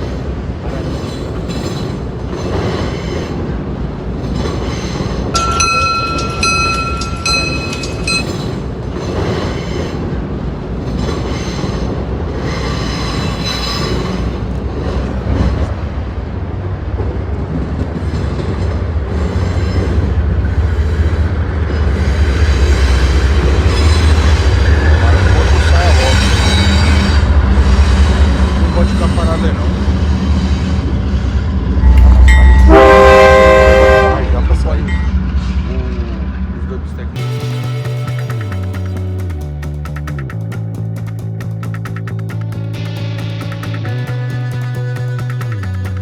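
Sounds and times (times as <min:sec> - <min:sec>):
train wheels clattering over rail joints: 0:00.0 - 0:16.0, 0:16.9 - 0:31.1, 0:37.2 - 0:46.0
deep rumble: 0:30.9 - 0:44.3.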